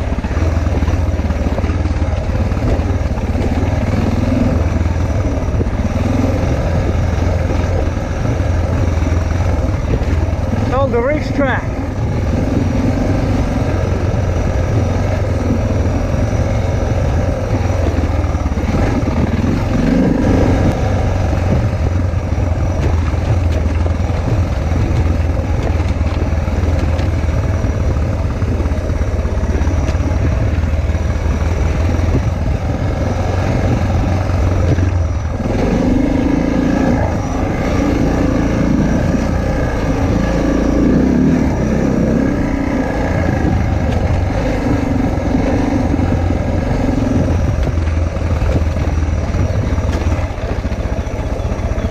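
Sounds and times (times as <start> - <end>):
motorcycle engine running: 0.0 - 51.9
wind noise: 0.0 - 51.9.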